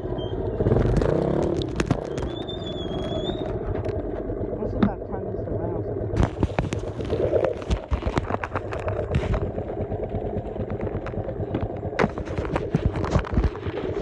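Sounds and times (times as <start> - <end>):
small vehicle engine running: 0.0 - 13.4
knocks and rattles: 6.2 - 14.0.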